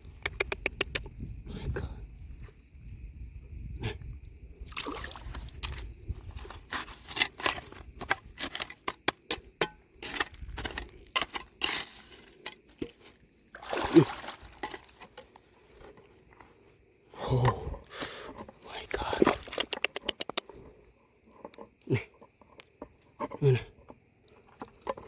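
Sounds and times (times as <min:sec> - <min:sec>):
water sloshing and trickling: 0:02.3 - 0:09.4, 0:10.0 - 0:25.0
stones and gravel knocking: 0:05.4 - 0:13.2, 0:17.4 - 0:20.8.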